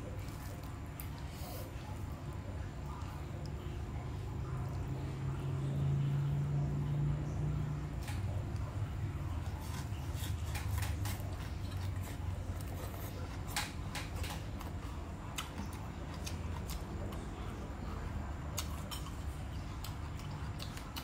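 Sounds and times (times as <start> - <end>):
steady low hum: 0.0 - 21.0
crunching of stems being chewed: 8.0 - 21.0.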